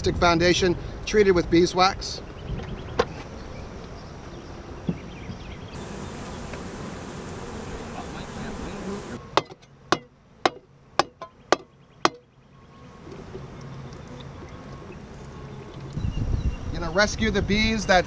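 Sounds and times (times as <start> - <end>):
honeybees buzzing: 2.4 - 11.0, 12.4 - 16.1
sharp knocks: 9.4 - 12.2.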